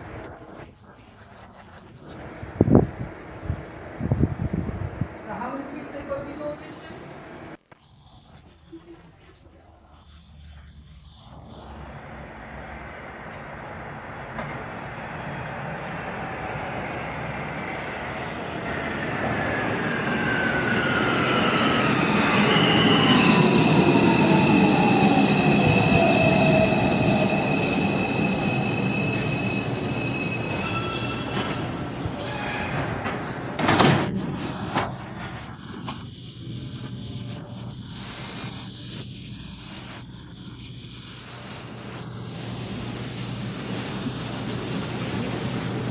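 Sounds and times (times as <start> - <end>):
subway train arriving: 0.0 - 1.4, 2.0 - 7.6, 10.3 - 45.9
air hiss: 9.8 - 45.9
wheel and brake squeals: 22.2 - 33.4.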